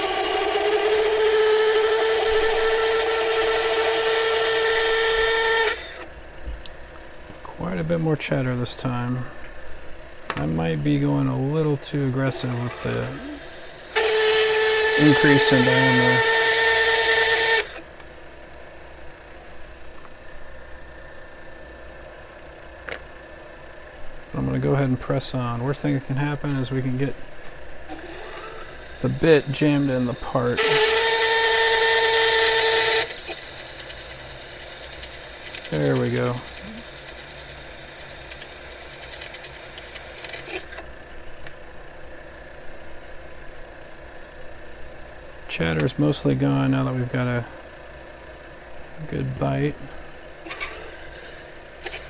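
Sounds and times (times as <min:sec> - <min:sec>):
drill bit chattering: 0:00.0 - 0:06.0, 0:12.5 - 0:17.8, 0:27.9 - 0:40.8, 0:51.6 - 0:52.0
lathe running: 0:00.0 - 0:06.1, 0:12.4 - 0:17.8, 0:27.9 - 0:40.8.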